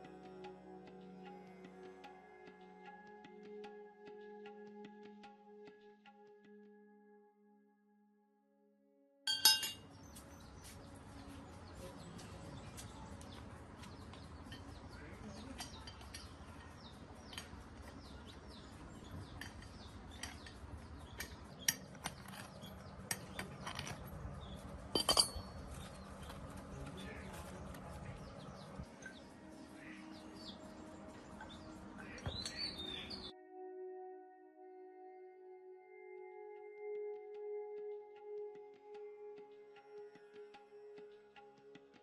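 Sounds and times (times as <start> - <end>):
background music: 0.0 - 7.8, 9.3 - 42.0
metal parts and tools clinking: 9.3 - 9.8, 14.5 - 26.3.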